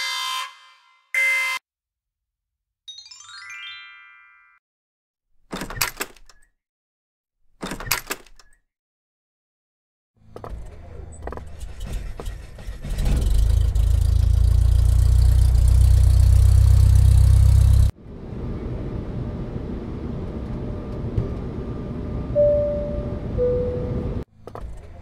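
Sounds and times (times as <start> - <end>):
loud low engine rumble: 11.5 - 24.2.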